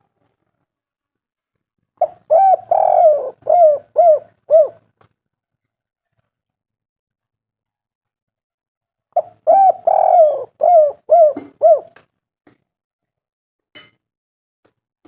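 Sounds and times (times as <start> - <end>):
dove cooing: 2.0 - 4.9, 9.2 - 12.0.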